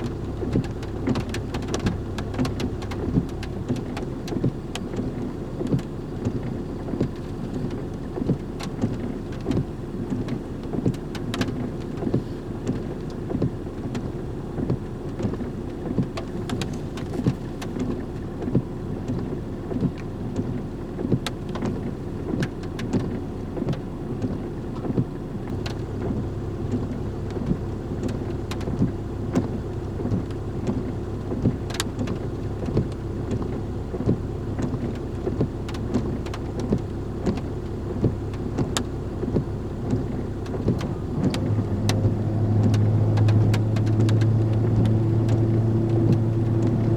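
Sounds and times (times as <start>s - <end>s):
vehicle engine on rough road: 0.0s - 46.9s.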